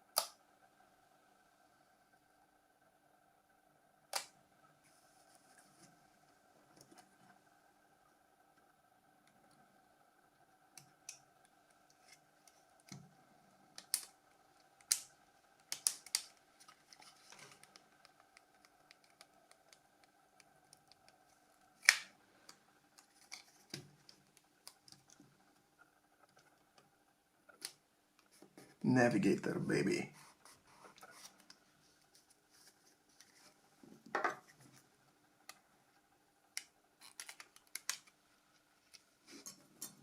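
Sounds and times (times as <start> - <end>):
faint steady hum: 0.0 - 40.0
plastic parts clicking and tapping: 36.6 - 38.2.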